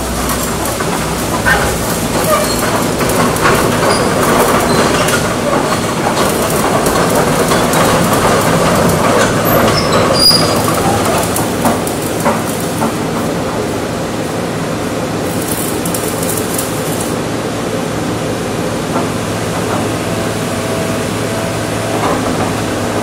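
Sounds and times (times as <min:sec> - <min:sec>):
metallic clatter: 0:00.0 - 0:13.0
excavator working: 0:00.0 - 0:23.0
high squeals: 0:01.4 - 0:05.9, 0:09.3 - 0:11.5.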